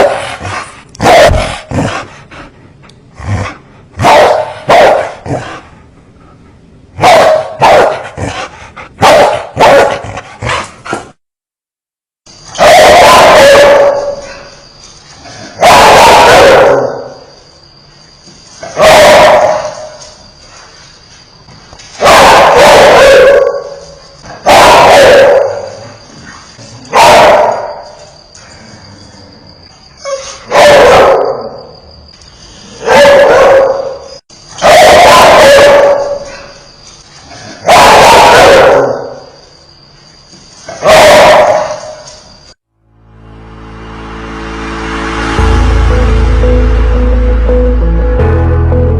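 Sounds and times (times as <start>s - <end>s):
dogs barking: 0.0s - 2.1s, 4.0s - 5.5s, 7.0s - 10.7s, 12.6s - 14.4s, 15.6s - 17.2s, 18.7s - 20.0s, 22.0s - 25.9s, 26.9s - 28.0s, 30.0s - 31.6s, 32.8s - 36.4s, 37.6s - 39.3s, 40.8s - 42.0s.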